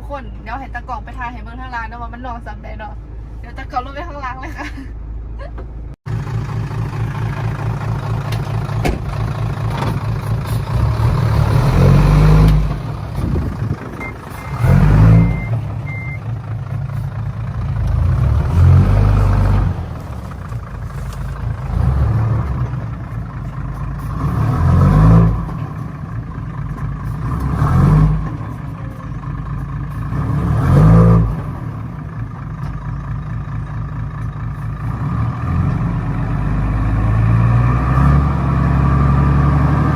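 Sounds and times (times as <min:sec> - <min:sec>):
truck engine revving: 0:06.1 - 0:32.5, 0:34.6 - 0:39.9.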